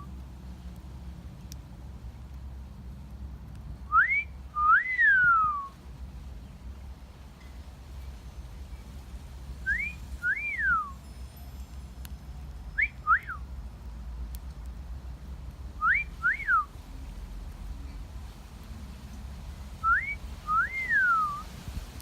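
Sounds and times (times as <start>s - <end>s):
two-note wolf whistles: 3.9s - 5.7s, 9.7s - 11.0s, 12.8s - 13.4s, 15.8s - 16.7s, 19.8s - 21.5s.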